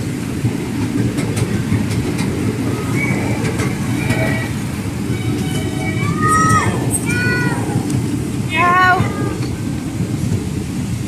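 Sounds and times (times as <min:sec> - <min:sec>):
train wheels rumbling on rail: 0:00.0 - 0:11.0
faint high wheel squeals: 0:02.8 - 0:07.2.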